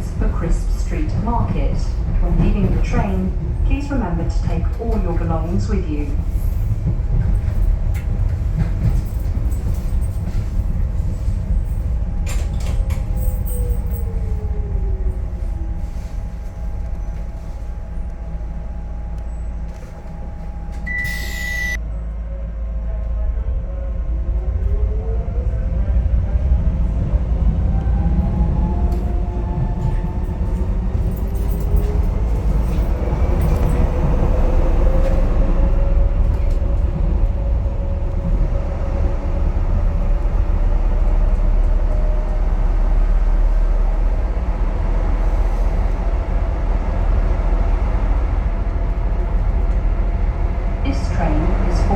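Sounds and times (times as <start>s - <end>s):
train rumble inside carriage: 0.0s - 51.9s
short high beep: 20.9s - 21.8s.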